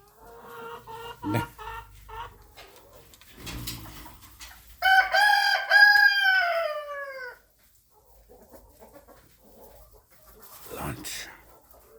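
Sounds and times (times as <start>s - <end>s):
rooster crowing: 4.8s - 7.4s.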